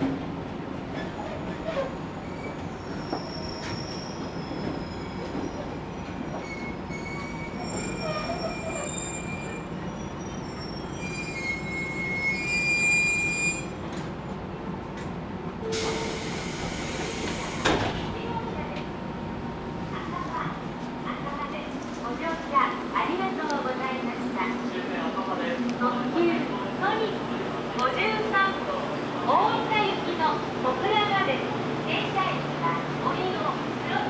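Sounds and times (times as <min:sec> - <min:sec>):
wheel and brake squeals: 0:01.3 - 0:13.7
loud air hiss: 0:15.7 - 0:17.8.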